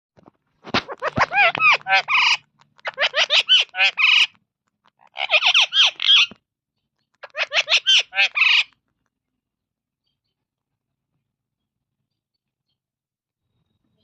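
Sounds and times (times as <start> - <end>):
parrot squawking: 0.8 - 6.4, 7.2 - 8.8.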